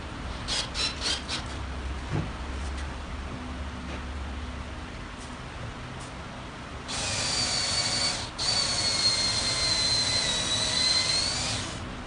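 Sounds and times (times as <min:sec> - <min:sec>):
power drill motor whining: 0:06.9 - 0:11.9.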